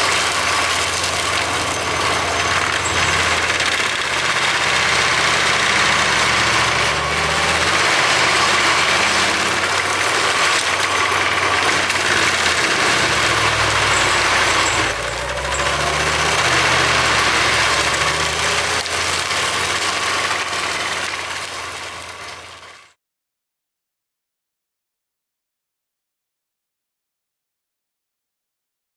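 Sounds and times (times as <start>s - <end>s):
mulcher rushing noise: 0.0s - 22.7s
tractor engine drone: 0.0s - 23.0s.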